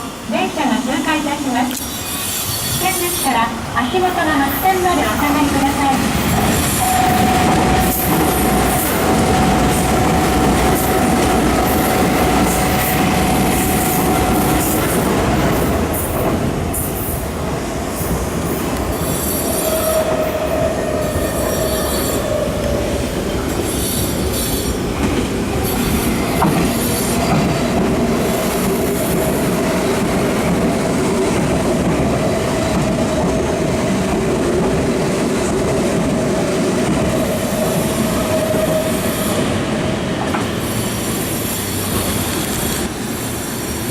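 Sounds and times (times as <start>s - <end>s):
train wheels squealing: 1.8s - 3.5s, 18.9s - 22.6s, 23.3s - 24.8s, 37.2s - 39.6s, 40.5s - 43.9s.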